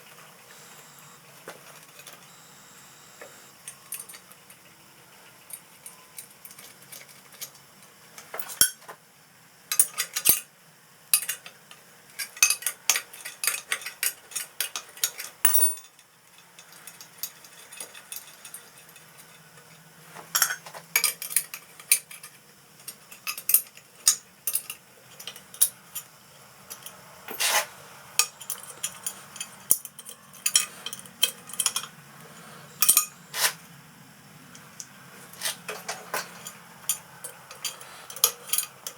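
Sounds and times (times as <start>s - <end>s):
metal parts clinking on workbench: 12.2s - 19.4s, 20.3s - 25.8s, 28.2s - 31.9s, 32.8s - 33.6s, 35.4s - 38.9s.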